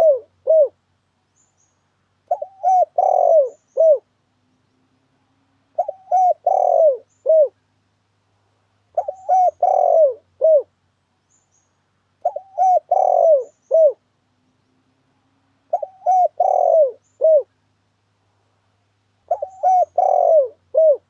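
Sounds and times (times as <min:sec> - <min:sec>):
dove cooing: 0:00.0 - 0:00.8, 0:02.3 - 0:04.1, 0:05.8 - 0:07.6, 0:08.9 - 0:10.7, 0:12.2 - 0:14.0, 0:15.7 - 0:17.5, 0:19.3 - 0:21.0.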